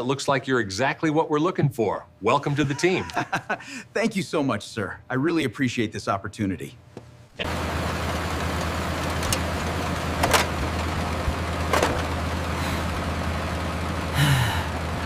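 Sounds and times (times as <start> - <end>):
vehicle engine running: 7.4 - 15.0.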